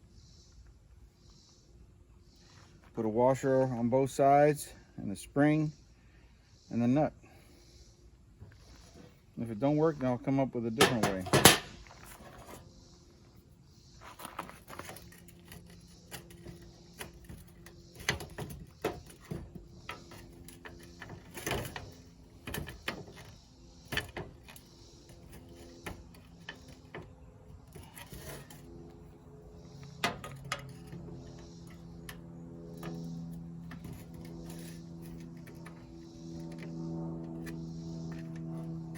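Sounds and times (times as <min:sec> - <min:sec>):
metal hardware clicking and knocking: 0:10.8 - 0:12.4, 0:14.8 - 0:28.7, 0:29.5 - 0:38.5.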